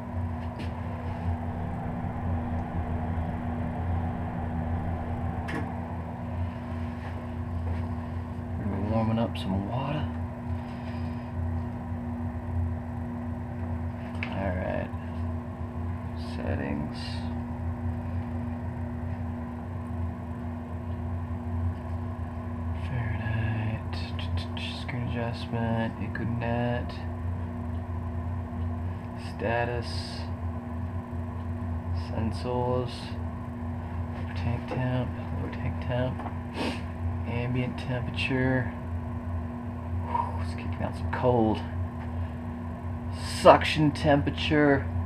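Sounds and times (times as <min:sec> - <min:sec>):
water heater humming: 0:00.0 - 0:45.0.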